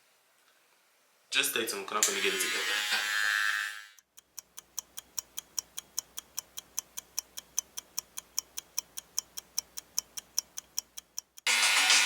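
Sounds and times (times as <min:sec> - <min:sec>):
fast clock ticking: 0:04.0 - 0:11.5.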